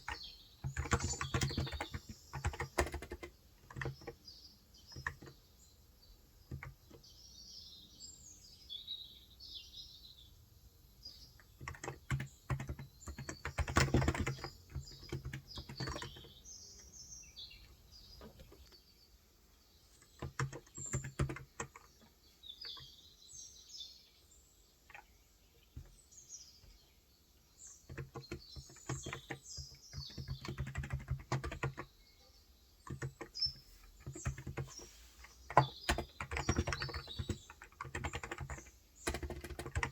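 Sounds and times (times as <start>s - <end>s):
keyboard typing: 0.0s - 4.2s, 4.9s - 5.4s, 6.5s - 7.0s, 11.6s - 16.4s, 20.0s - 22.0s, 27.8s - 31.9s, 32.8s - 39.9s
small birds chirping: 0.0s - 39.9s.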